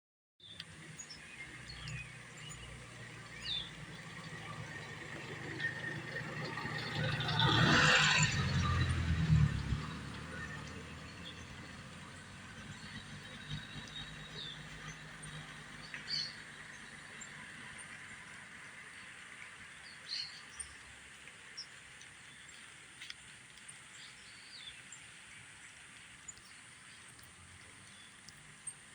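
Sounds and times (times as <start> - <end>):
soft outdoor hiss: 8.8 - 28.9.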